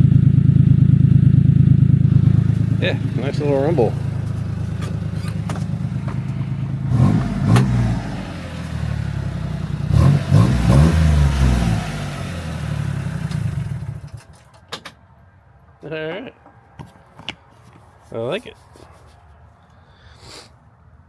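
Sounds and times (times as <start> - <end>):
small truck engine idling and revving: 0.0 - 14.5.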